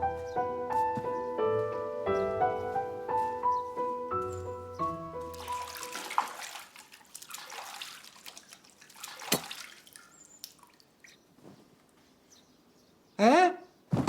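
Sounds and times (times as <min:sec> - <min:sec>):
background music: 0:00.0 - 0:06.2
water splashing and dripping: 0:04.2 - 0:11.4.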